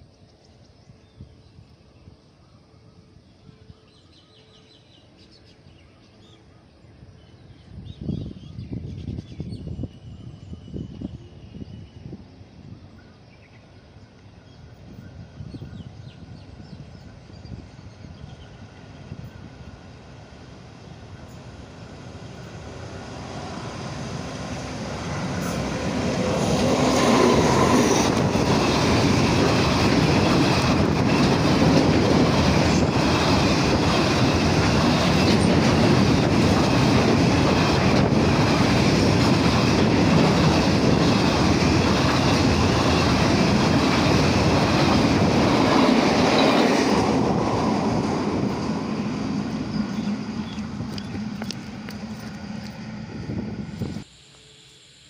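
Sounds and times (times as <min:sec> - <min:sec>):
freight train wheels on rails: 0:13.8 - 0:54.1.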